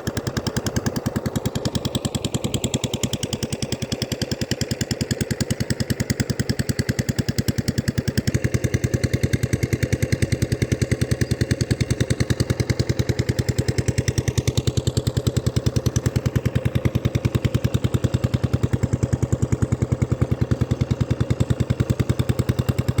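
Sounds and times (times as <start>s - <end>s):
diesel engine running: 8.0s - 23.0s.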